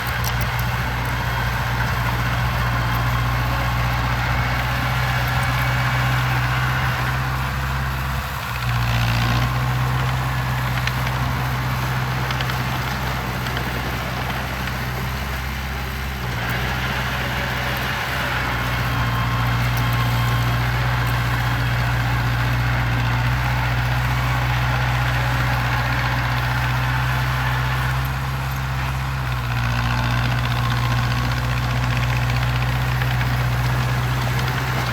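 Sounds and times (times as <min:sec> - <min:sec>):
heavy machine engine humming: 0:00.0 - 0:34.9.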